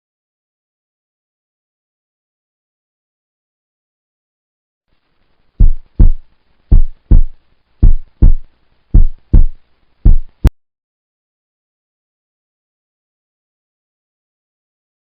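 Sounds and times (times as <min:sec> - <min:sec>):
deep heartbeat thumps: 0:05.6 - 0:10.5.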